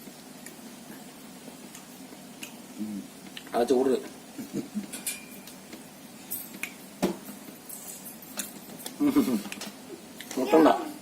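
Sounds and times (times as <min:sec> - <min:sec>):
plates clicking and tapping: 0:04.8 - 0:05.6.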